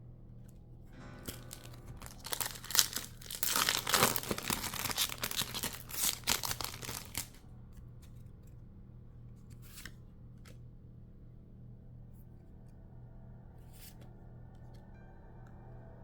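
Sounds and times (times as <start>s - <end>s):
wrapper tearing and crinkling: 1.2s - 7.4s.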